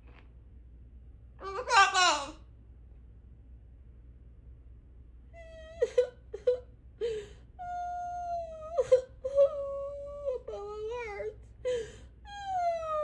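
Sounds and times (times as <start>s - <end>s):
parrot whimpering wail: 1.4s - 2.4s, 5.4s - 6.6s, 12.3s - 13.0s.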